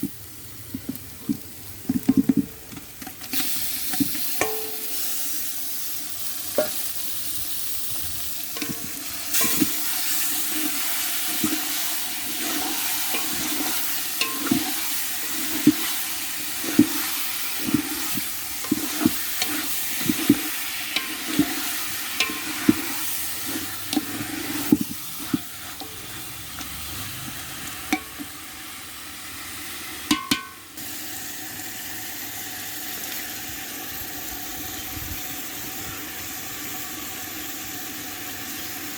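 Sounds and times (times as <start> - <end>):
curry sizzling in a pan: 0.0 - 38.9
spoon scraping a pan: 8.5 - 28.3.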